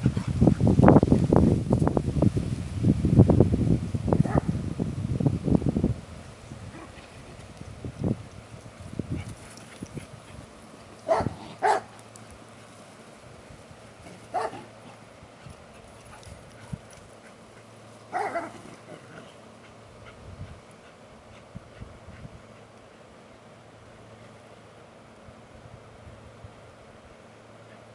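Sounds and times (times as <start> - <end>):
dogs playing: 0.0 - 2.0, 6.6 - 23.0
dog barking: 4.2 - 4.5, 11.1 - 11.9, 14.3 - 14.7, 18.1 - 18.6.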